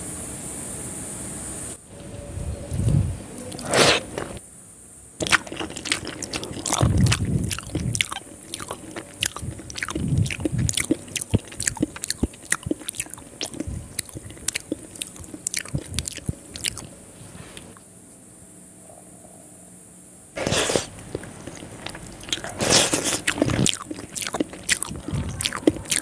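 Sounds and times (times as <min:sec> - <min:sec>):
wet chewing mouth clicks: 0:05.2 - 0:17.0, 0:20.4 - 0:26.0.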